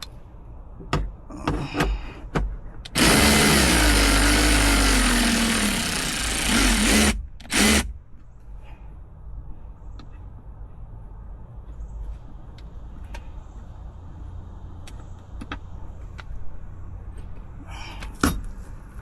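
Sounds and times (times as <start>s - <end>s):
power drill whine: 2.9s - 7.9s.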